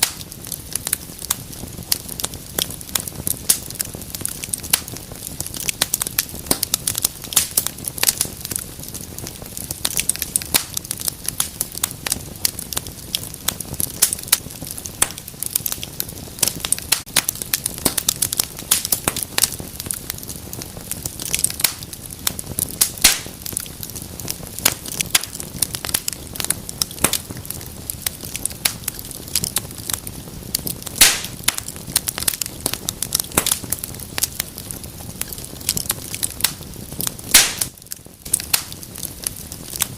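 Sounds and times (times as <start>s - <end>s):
fire hiss: 0.0s - 39.9s
wood fire crackling: 0.0s - 39.9s.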